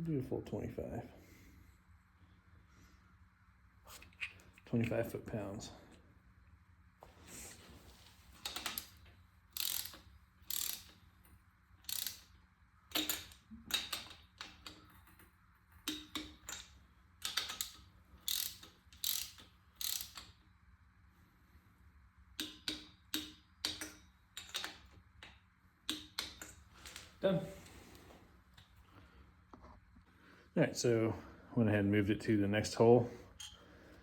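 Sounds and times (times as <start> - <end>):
torque wrench ratchet clicks: 8.4 - 11.0, 11.8 - 14.8, 15.8 - 20.4, 22.4 - 24.8.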